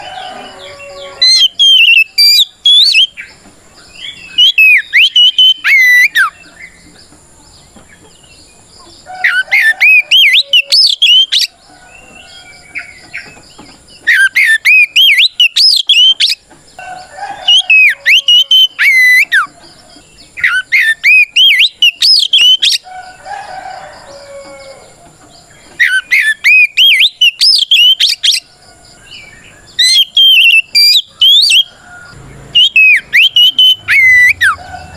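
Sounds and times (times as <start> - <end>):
magpie-robin singing whistled song: 0.6 - 3.3, 3.9 - 6.8, 9.2 - 16.4, 17.4 - 19.5, 20.2 - 22.9, 25.4 - 28.5, 29.1 - 31.8, 32.5 - 34.6.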